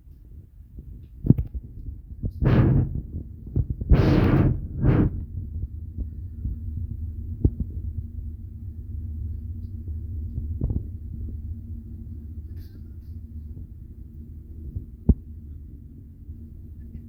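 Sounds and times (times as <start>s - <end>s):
ship engine drone: 2.4s - 3.1s, 3.9s - 17.0s
short rushing bursts of noise: 2.4s - 3.1s, 3.9s - 5.2s.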